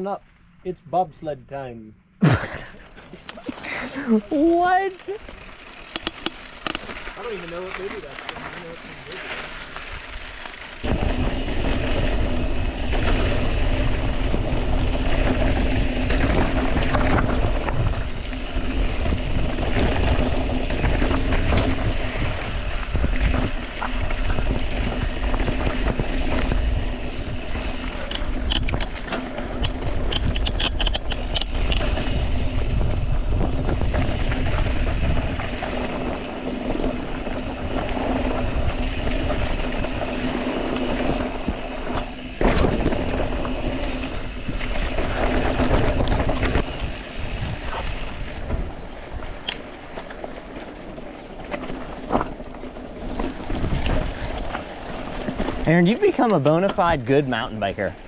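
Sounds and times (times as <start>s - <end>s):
bike rattling: 2.0s - 58.0s
sharp clicks and rattles: 2.8s - 58.0s
tyres rolling over dirt and rock: 2.8s - 58.0s
wind rushing over microphone: 9.8s - 56.2s.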